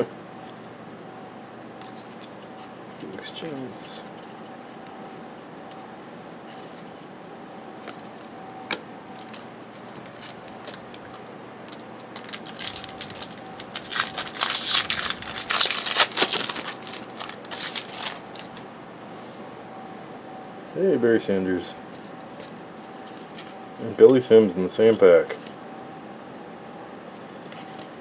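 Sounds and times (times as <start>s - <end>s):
wrapper tearing and crinkling: 11.8s - 18.6s.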